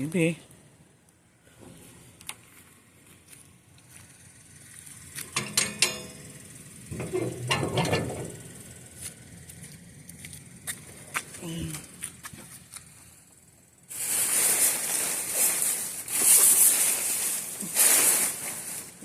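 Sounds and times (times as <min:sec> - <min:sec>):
clattering and rustling in dumpster: 0:05.2 - 0:08.7, 0:13.9 - 0:19.0.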